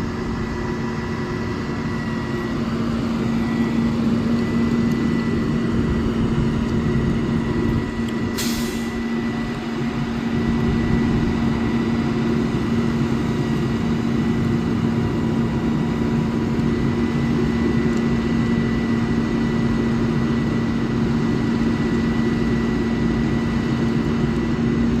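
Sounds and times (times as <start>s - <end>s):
diesel engine droning: 0.0s - 25.0s
air hiss: 8.3s - 9.1s.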